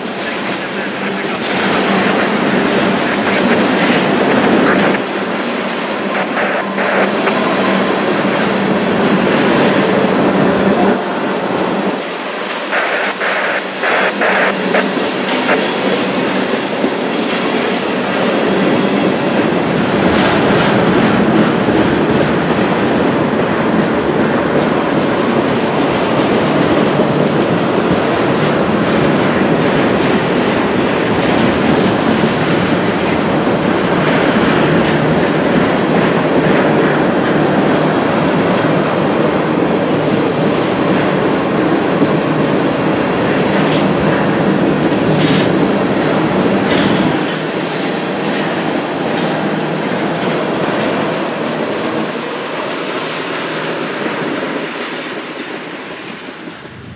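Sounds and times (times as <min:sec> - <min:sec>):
freight train wheels rumbling: 0:00.0 - 0:56.9
wheels clicking over rail joints: 0:19.7 - 0:56.6.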